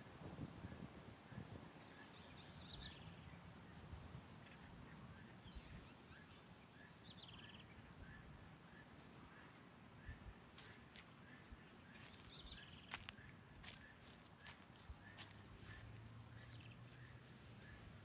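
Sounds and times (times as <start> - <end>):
distant bird chirps: 5.7 - 18.0.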